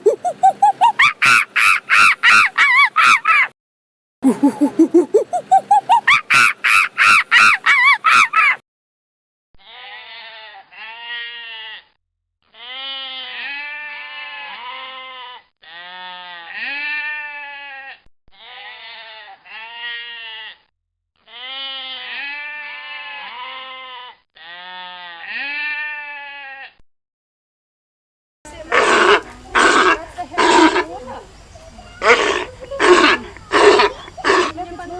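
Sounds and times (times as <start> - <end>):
bleating: 9.6 - 26.8, 28.6 - 31.2, 31.8 - 34.9
loud rapid calls: 28.7 - 34.9.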